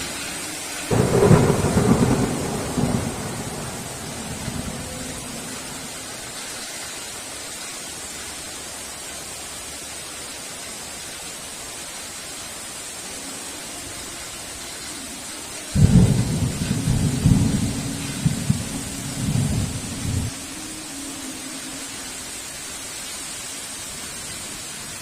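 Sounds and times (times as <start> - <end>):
heavy rain hissing: 0.0 - 25.0
thunder rumble: 0.6 - 6.4, 15.7 - 20.5
loud thunder clap: 0.9 - 5.4.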